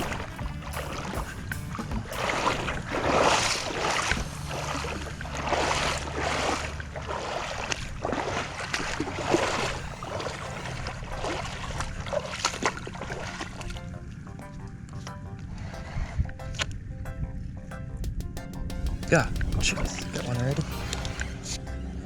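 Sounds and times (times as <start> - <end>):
shallow seawater sloshing: 0.0 - 14.2
small waves lapping: 0.0 - 14.8.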